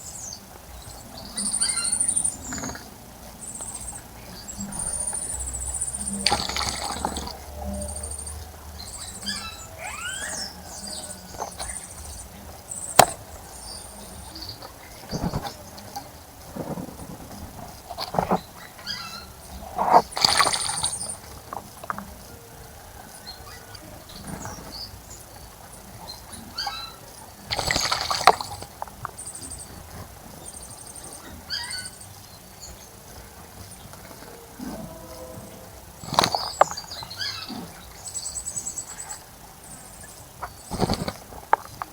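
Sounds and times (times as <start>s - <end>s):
small birds trilling chirps: 0.0s - 41.9s
high thin bird chirps: 1.1s - 15.5s, 18.1s - 21.4s.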